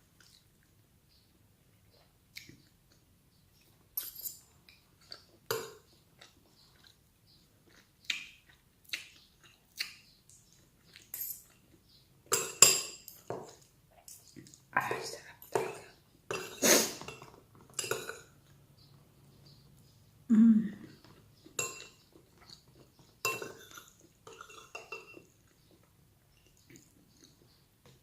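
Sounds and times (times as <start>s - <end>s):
person chewing: 0.1s - 0.8s, 4.6s - 12.0s, 20.8s - 27.6s
utensils clinking on plate: 4.0s - 4.6s, 11.0s - 11.6s, 12.2s - 14.4s, 15.4s - 18.4s, 21.0s - 25.5s.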